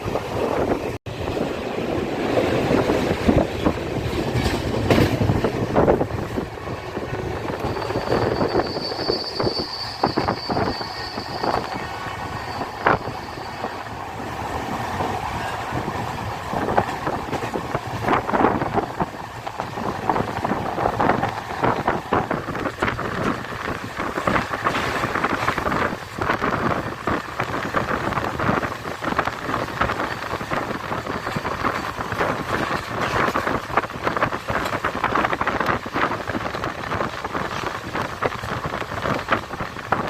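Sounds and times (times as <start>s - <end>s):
train wheels clacking on rails: 2.1s - 40.0s
high wheel squeal: 7.0s - 14.3s.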